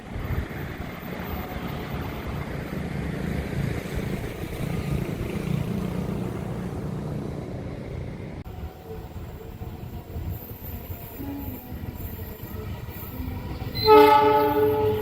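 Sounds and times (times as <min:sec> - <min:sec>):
wind noise: 0:00.0 - 0:05.8, 0:07.9 - 0:15.0.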